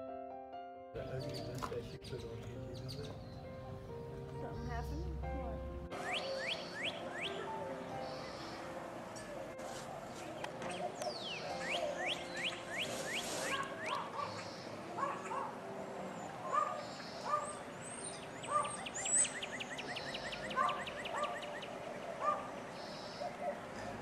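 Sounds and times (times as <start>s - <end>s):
bird chirps: 1.0s - 9.3s, 10.2s - 15.4s, 16.2s - 24.0s
high bird whistles: 6.0s - 7.4s, 11.1s - 14.7s
short bird calls: 10.2s - 15.4s.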